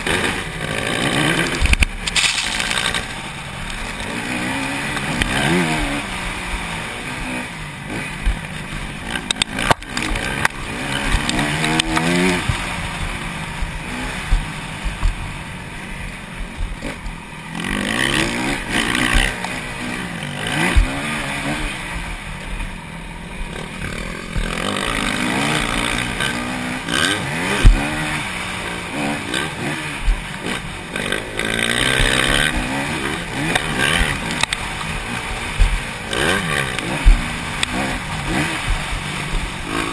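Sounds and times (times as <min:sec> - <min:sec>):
motocross bike engines revving: 0:00.0 - 0:39.9
sharp thumps: 0:27.1 - 0:28.1, 0:30.0 - 0:39.9.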